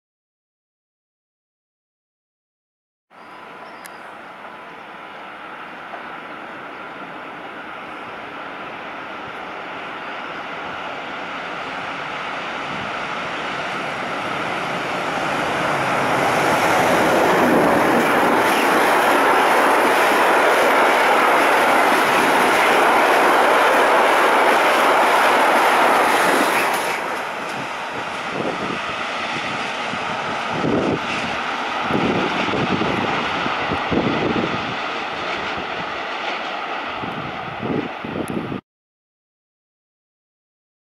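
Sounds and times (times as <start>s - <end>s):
freight train passing: 3.2s - 38.6s.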